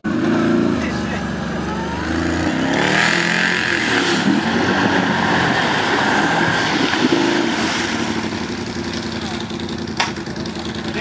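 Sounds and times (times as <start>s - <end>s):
quad bike engines revving: 0.0s - 11.0s
water splashing: 3.2s - 11.0s.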